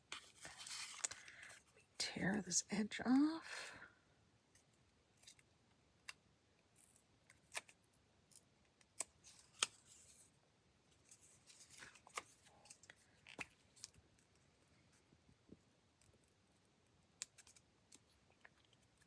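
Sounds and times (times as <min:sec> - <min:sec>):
paper rustling: 0:00.1 - 0:01.6, 0:11.0 - 0:14.0.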